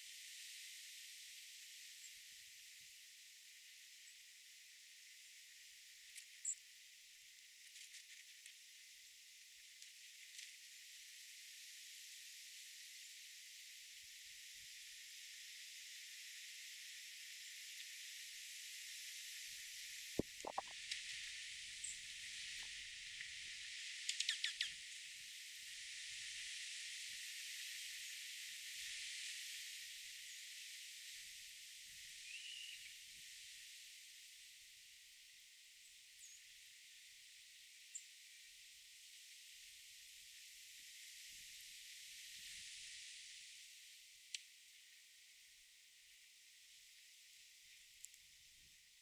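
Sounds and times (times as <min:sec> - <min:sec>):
garden ambience hiss: 0:00.0 - 0:49.0
bird chirp: 0:24.1 - 0:24.8, 0:32.2 - 0:32.9.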